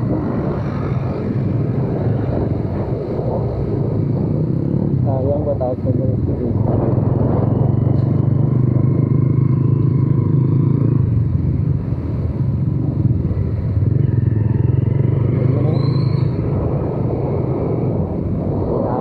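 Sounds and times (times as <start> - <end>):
motorcycle engine running: 6.6 - 17.9.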